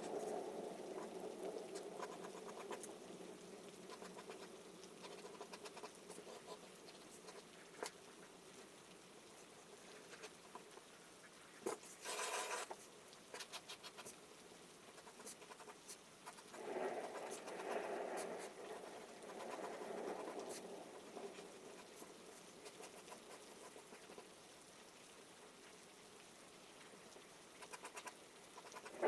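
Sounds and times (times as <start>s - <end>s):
faint rain pattering: 0.0s - 29.0s
charcoal scratching on paper: 11.6s - 14.1s, 27.6s - 29.0s.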